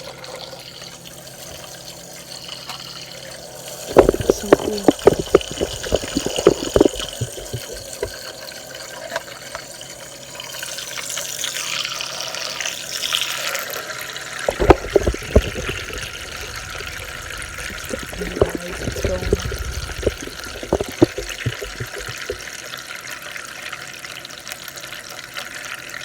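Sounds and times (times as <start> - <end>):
water swishing in small machine: 3.8 - 8.3, 14.4 - 22.4
sharp knocks and clatters: 3.9 - 8.2, 14.5 - 22.4.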